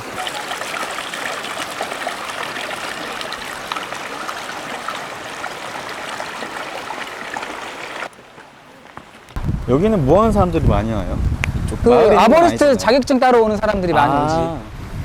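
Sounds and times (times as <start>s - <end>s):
mountain stream rushing: 0.0s - 9.4s.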